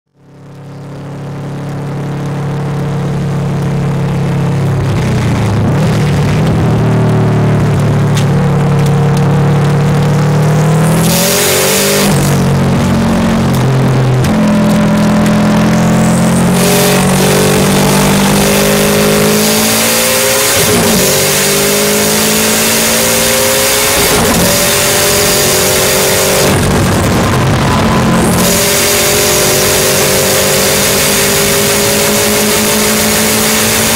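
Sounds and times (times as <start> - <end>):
car engine accelerating hard: 0.3 - 33.9.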